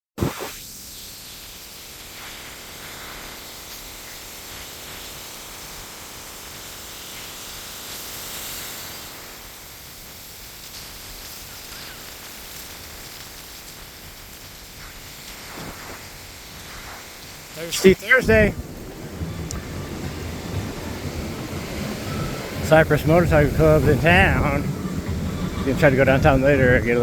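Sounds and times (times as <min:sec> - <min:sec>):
ocean surf hissing: 0:15.3 - 0:27.0.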